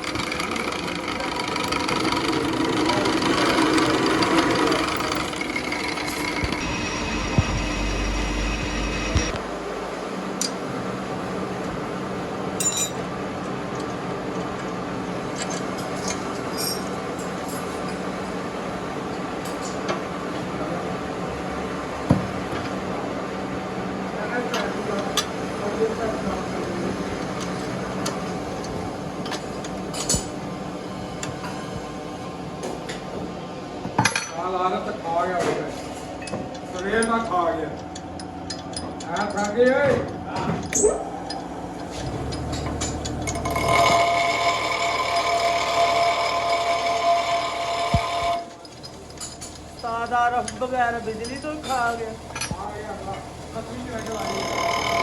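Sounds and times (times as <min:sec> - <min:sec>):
workshop machine humming and whining: 0:00.0 - 0:36.8, 0:37.6 - 0:55.0
quieter steady hum: 0:04.7 - 0:12.9.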